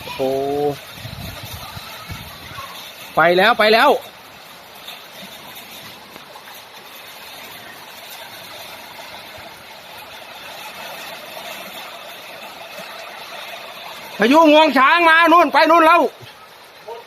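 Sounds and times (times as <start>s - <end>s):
steady rushing wind: 0.0s - 3.3s.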